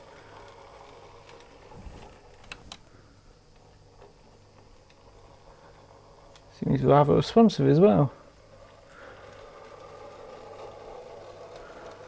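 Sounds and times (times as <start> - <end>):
model train running on track: 4.9 - 12.0.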